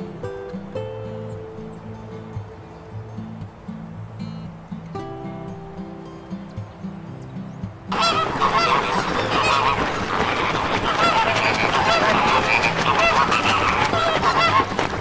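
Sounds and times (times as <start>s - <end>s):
flamingos honking: 7.8s - 15.0s.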